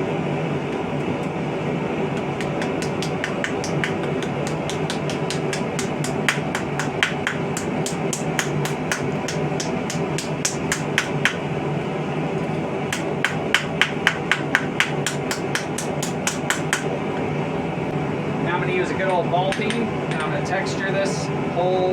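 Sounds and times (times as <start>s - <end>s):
hammer striking metal on anvil: 2.4s - 11.5s, 12.9s - 16.9s.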